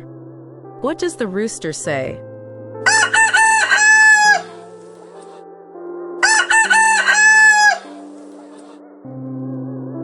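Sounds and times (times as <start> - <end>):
rooster crowing: 2.9 - 4.6, 6.2 - 8.0.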